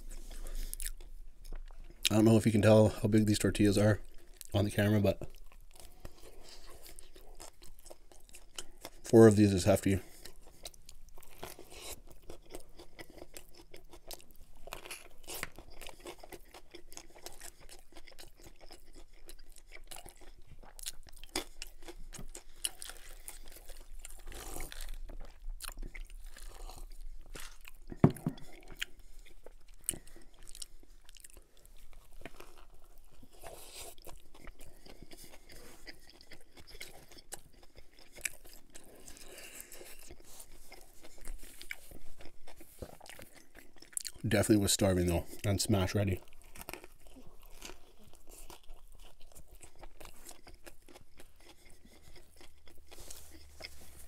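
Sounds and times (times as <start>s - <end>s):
person chewing with mouth clicks: 0.0s - 2.3s, 5.2s - 9.1s, 10.0s - 54.0s
person swallowing a drink: 27.9s - 28.5s.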